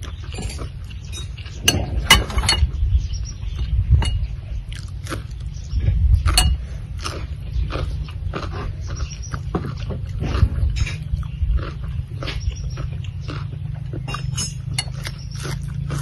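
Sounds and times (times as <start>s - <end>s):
biting and chewing cucumber: 0.0s - 16.0s
steady low rumble: 0.6s - 16.0s
spoons clinking on plates: 4.0s - 4.3s, 6.4s - 6.6s, 14.0s - 15.2s
crackly mouth noises: 4.6s - 14.3s.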